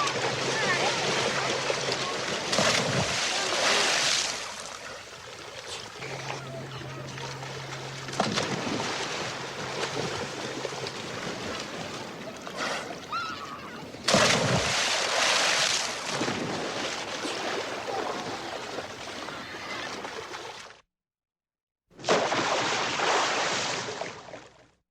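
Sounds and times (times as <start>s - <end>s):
pool water splashing: 0.0s - 20.8s, 22.0s - 24.6s
big sudden splash: 2.4s - 4.5s, 14.0s - 16.9s, 22.0s - 24.0s.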